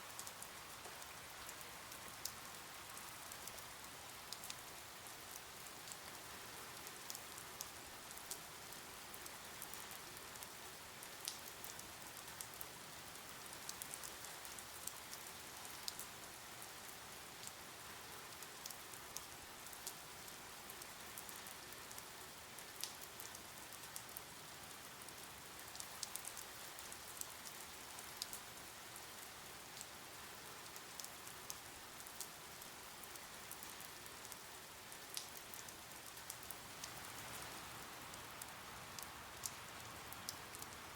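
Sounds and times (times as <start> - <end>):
rain hiss: 0.0 - 40.9
sharp drip ticks: 4.3 - 6.2, 22.8 - 24.2, 25.6 - 28.4, 30.7 - 32.3, 35.1 - 37.2, 38.1 - 40.8.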